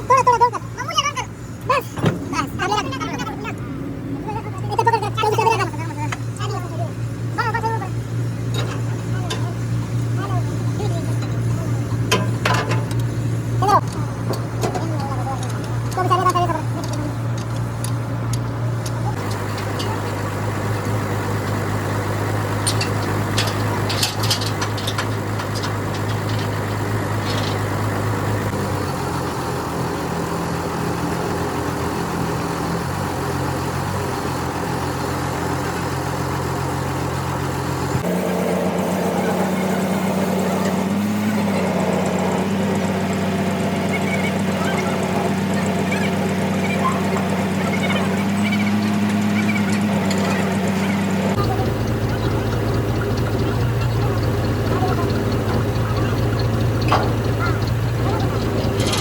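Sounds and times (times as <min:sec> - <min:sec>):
large diesel engine running: 0:00.0 - 0:59.0
metallic clanks: 0:08.2 - 0:28.6, 0:43.9 - 0:59.0.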